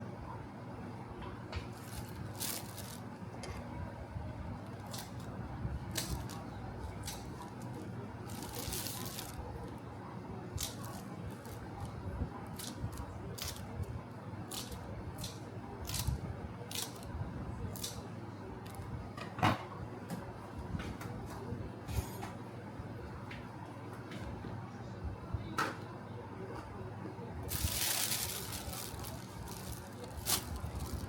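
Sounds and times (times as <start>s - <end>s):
crisp snips or rustles: 1.7s - 3.1s, 5.9s - 9.4s, 27.5s - 31.0s.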